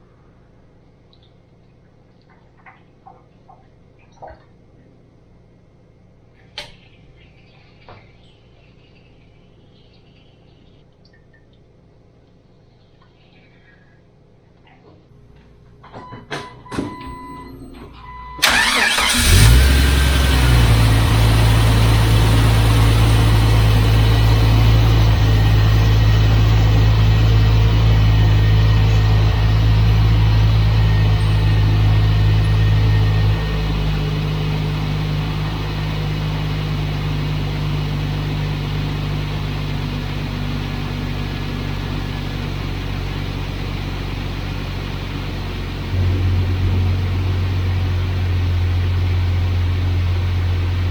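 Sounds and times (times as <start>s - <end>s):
car engine starting and idling: 16.9s - 50.9s.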